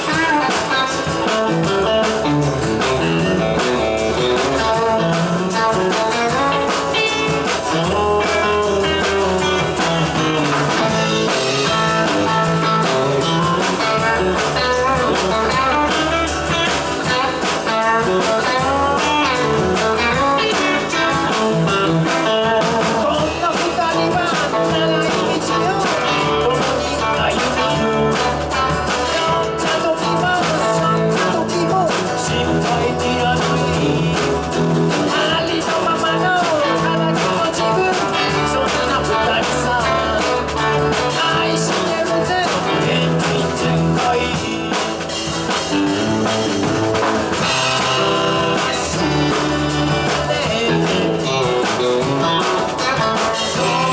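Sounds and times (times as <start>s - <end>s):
bass guitar: 0.0s - 53.9s
electric guitar: 0.0s - 53.9s
steady drum beat: 0.0s - 53.9s.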